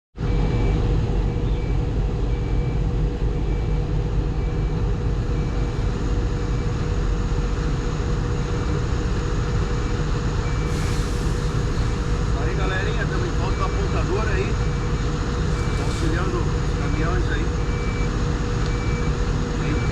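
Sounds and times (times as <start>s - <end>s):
bulldozer diesel engine rumbling: 0.2s - 19.9s
short hiss: 10.7s - 12.2s
faint beep: 12.4s - 14.8s, 15.6s - 18.1s, 18.7s - 19.9s.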